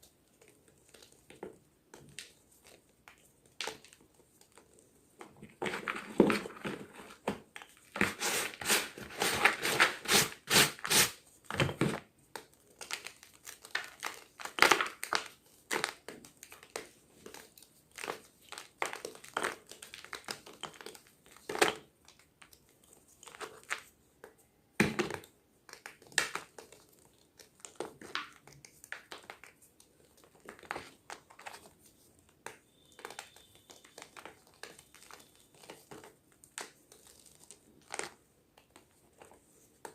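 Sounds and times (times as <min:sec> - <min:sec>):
chalk crunching: 0:07.9 - 0:11.2.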